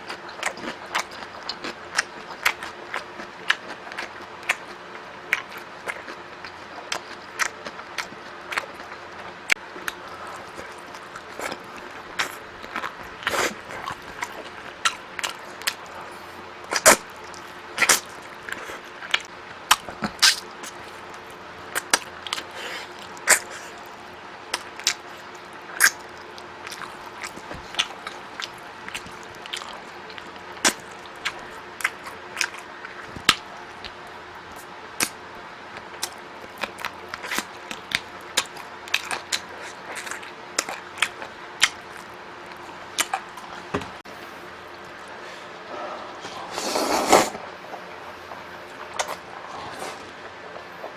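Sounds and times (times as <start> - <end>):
person biting and chewing: 9.8 - 16.0, 16.7 - 20.8.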